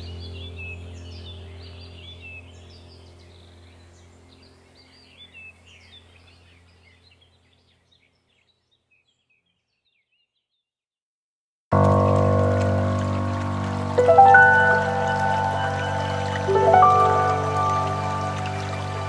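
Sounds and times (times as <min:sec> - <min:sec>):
steady low hum: 0:00.0 - 0:07.5
small birds chirping: 0:00.0 - 0:10.7, 0:13.9 - 0:19.0.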